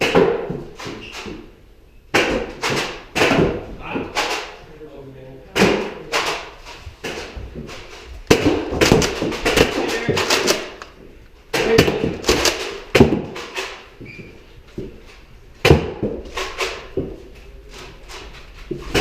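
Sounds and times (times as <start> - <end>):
foam balls striking furniture: 0.0 - 4.6, 5.5 - 10.8, 11.5 - 14.0, 15.6 - 17.3, 18.6 - 19.0.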